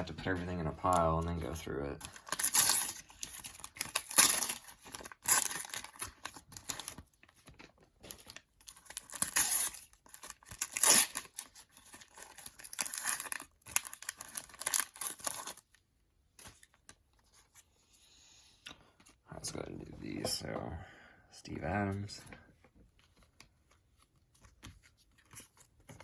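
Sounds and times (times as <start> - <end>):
sticker packets tearing and crinkling: 0.8 - 15.7.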